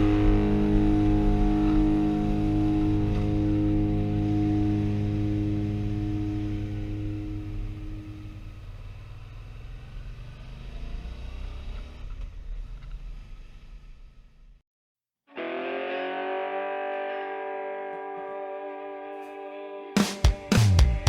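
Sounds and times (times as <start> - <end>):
distorted electric guitar chord: 0.0 - 9.0, 15.3 - 21.0
low rumbling noise: 0.0 - 14.6.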